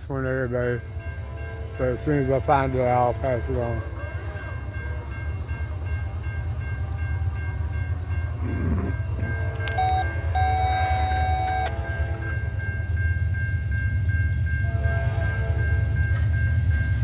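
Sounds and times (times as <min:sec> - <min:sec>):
diesel locomotives rumbling: 0:00.0 - 0:17.0
train air horn blasts: 0:09.2 - 0:12.4, 0:14.6 - 0:15.7.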